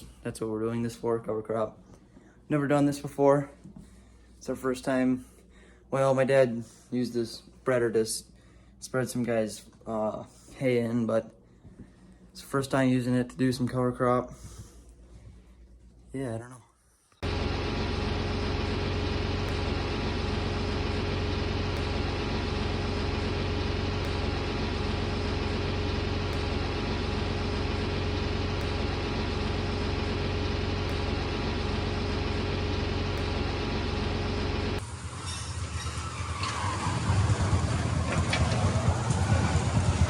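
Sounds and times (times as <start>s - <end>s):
engine sound: 17.2s - 40.0s
tractor engine running: 17.2s - 40.0s.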